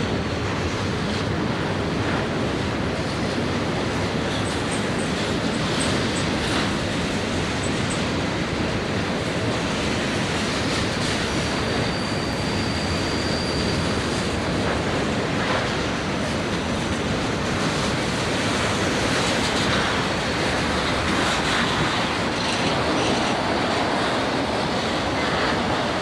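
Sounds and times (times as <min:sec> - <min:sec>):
train wheels rumbling on rail: 0:00.0 - 0:26.0
high wheel squeal: 0:11.4 - 0:14.4.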